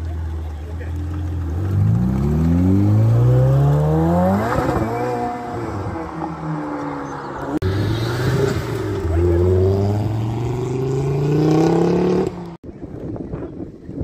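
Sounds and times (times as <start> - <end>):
sports car engine revving: 1.0 - 6.7, 7.4 - 12.5.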